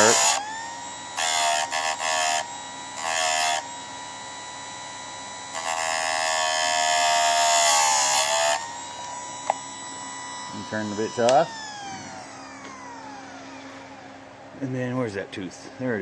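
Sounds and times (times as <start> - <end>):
grinding wheel rasping on chain: 0.0 - 0.3
electric motor whining: 0.0 - 14.6.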